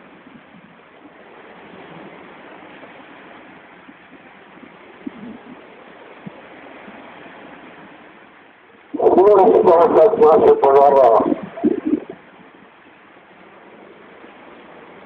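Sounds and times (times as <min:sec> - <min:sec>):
rushing outdoor noise: 0:00.0 - 0:15.0.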